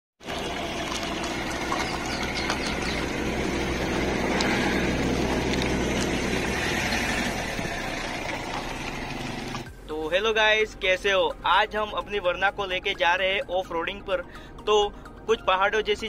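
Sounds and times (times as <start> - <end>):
car engine hum: 0.2 - 9.9.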